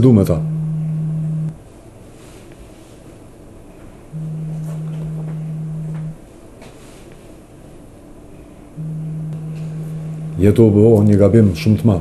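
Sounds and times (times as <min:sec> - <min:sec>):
low electronic phone tone: 0:00.0 - 0:01.6, 0:04.1 - 0:06.2, 0:08.8 - 0:10.8.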